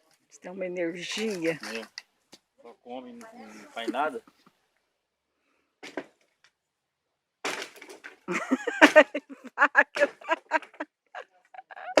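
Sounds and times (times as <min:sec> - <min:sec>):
people making wordless sounds: 0:02.7 - 0:04.5.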